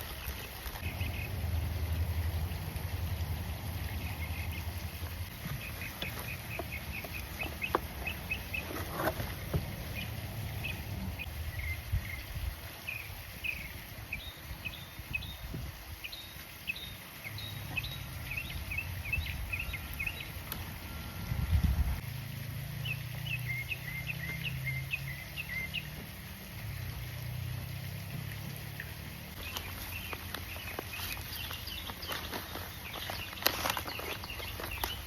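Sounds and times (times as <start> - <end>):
rustle: 0.0 - 35.0
small birds chirping: 3.8 - 20.6, 22.8 - 26.1, 29.3 - 35.0.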